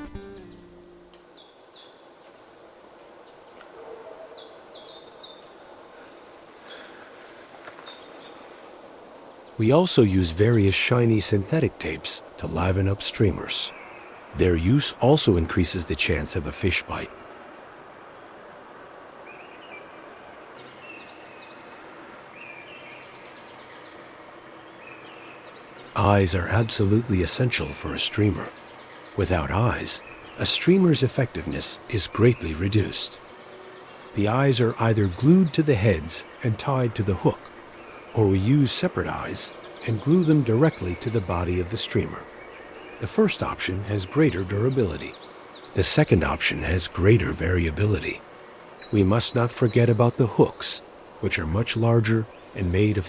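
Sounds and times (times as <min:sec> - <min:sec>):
small songbird chirping: 0:00.0 - 0:02.3, 0:20.6 - 0:53.0
faint outdoor background noise: 0:00.0 - 0:53.0.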